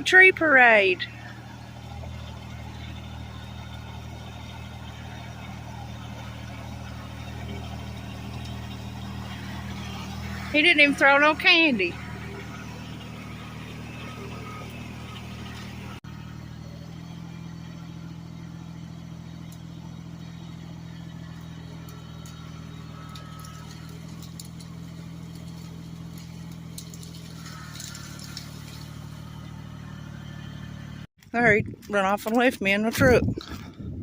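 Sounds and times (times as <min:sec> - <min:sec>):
truck engine idling: 0:00.0 - 0:34.0.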